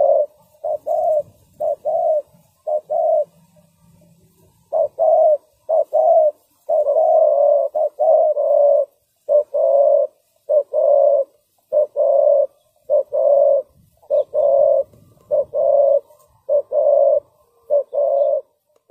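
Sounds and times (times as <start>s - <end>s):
dove cooing: 0.0s - 18.9s.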